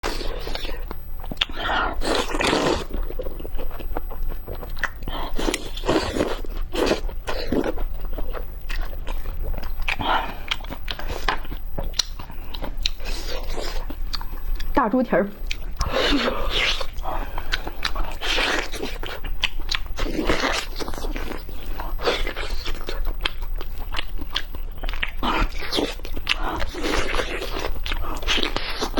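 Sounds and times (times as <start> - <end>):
crunchy bites: 0.0 - 14.7, 15.4 - 28.9
person chewing: 0.0 - 14.8, 15.4 - 28.9
mouth clicks: 9.6 - 13.0
wet mouth clicks: 11.9 - 12.2.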